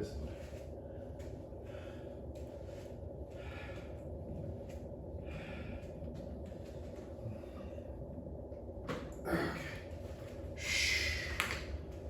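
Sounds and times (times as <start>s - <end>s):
low background hum: 0.0s - 12.0s
man breathing hard: 0.3s - 2.5s, 5.2s - 6.2s, 10.6s - 11.4s.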